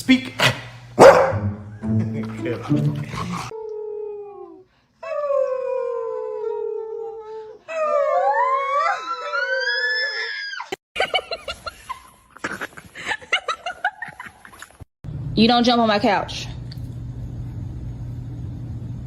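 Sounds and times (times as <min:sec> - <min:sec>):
dog howling: 0:03.4 - 0:10.7.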